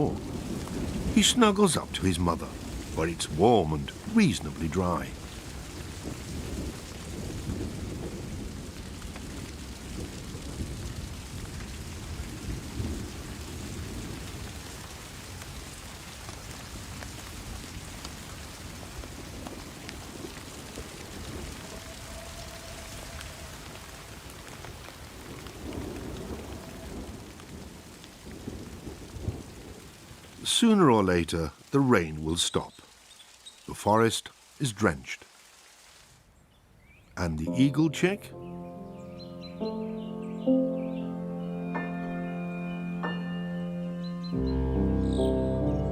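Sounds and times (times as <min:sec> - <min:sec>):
rain on forest: 0:00.0 - 0:38.2, 0:38.8 - 0:45.9
thunder rolling: 0:05.1 - 0:14.4, 0:19.3 - 0:29.5.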